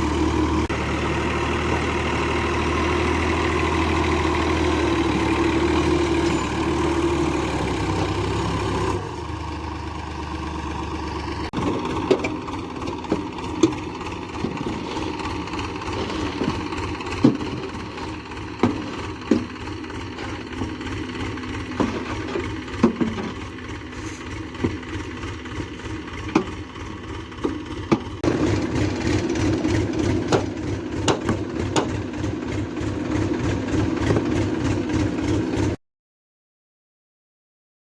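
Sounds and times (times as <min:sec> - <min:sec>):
tractor diesel engine running: 0:00.0 - 0:35.8
sharp knocks and clunks: 0:11.5 - 0:15.2, 0:15.8 - 0:20.8, 0:21.6 - 0:23.5, 0:26.2 - 0:26.7, 0:27.4 - 0:28.4, 0:30.0 - 0:32.2.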